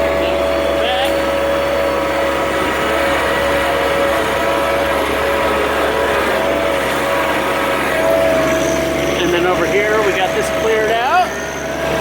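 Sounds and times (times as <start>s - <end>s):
steady whine: 0.0s - 12.0s
tractor diesel engine running: 0.0s - 12.0s.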